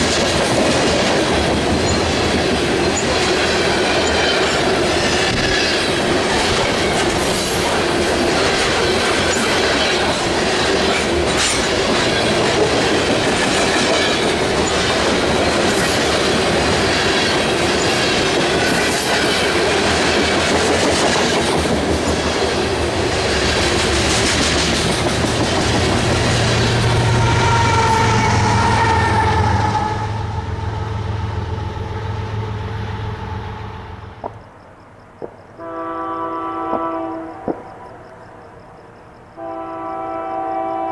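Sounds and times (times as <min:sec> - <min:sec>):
freight train wheels clacking: 0:00.0 - 0:29.4.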